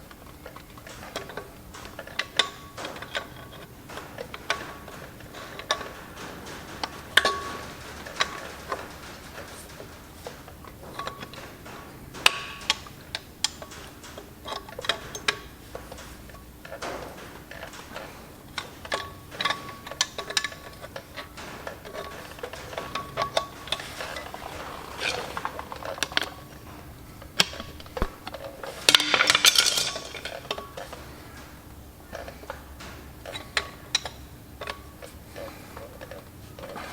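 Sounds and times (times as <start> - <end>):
hand tools clinking on metal: 0.0 - 36.9.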